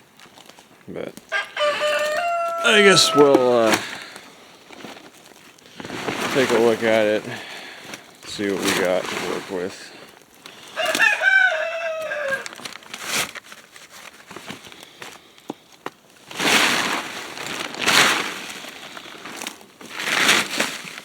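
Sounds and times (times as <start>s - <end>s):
rooster crowing: 1.3s - 4.1s, 10.8s - 12.6s
plastic tarp rustling: 1.9s - 11.0s, 12.4s - 15.2s, 16.1s - 21.0s.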